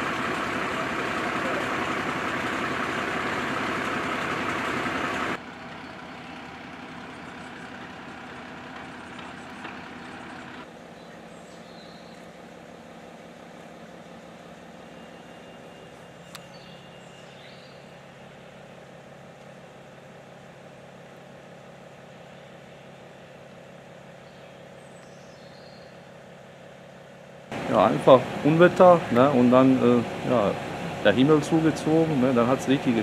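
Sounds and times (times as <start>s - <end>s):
fire engine idling: 0.0s - 33.0s.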